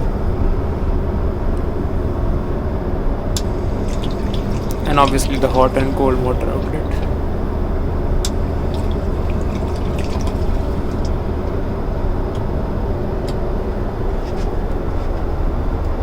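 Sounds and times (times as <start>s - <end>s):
airliner cabin drone: 0.0s - 16.0s.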